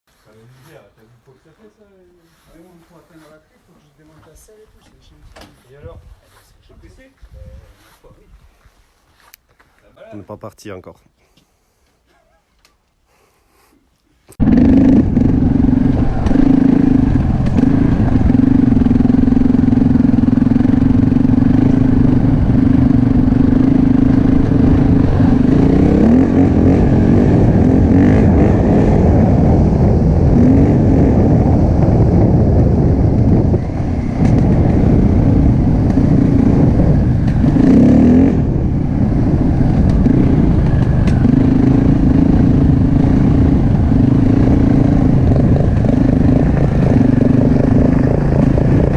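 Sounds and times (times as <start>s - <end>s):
motorcycle engine running: 14.4s - 48.9s.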